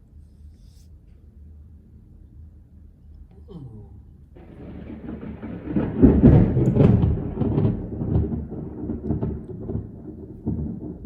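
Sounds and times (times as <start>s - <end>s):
rolling thunder rumble: 4.3s - 11.0s
thunder crack: 4.4s - 11.0s.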